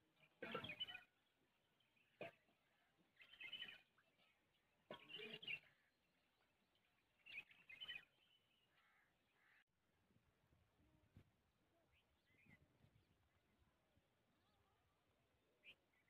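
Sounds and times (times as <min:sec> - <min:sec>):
birds calling: 0:00.2 - 0:09.7.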